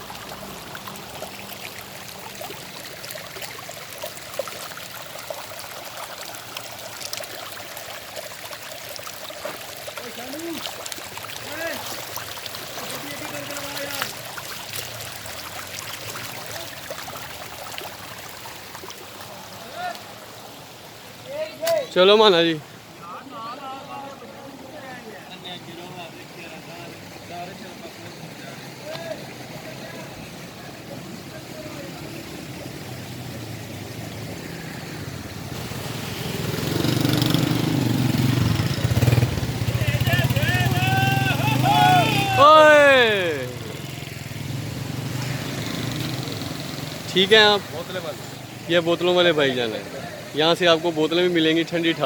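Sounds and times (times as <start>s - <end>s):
running water splashing: 0.0s - 52.0s
vehicle engine approaching: 32.0s - 48.7s.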